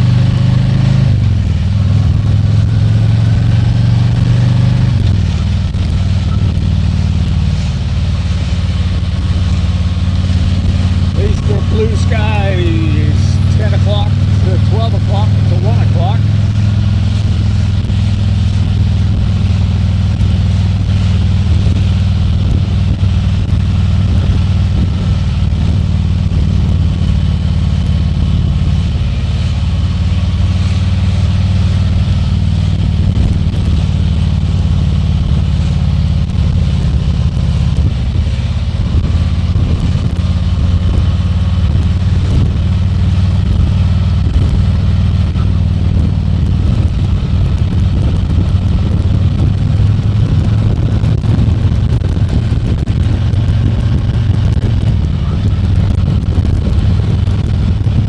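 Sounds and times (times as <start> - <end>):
motorcycle engine rumbling: 0.0 - 58.0
road and air noise: 0.0 - 58.0.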